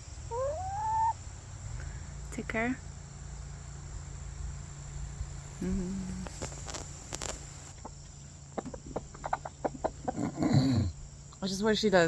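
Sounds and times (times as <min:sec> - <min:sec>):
steady low hum: 0:00.0 - 0:12.0
chicken murmur: 0:00.3 - 0:01.2, 0:08.6 - 0:11.0.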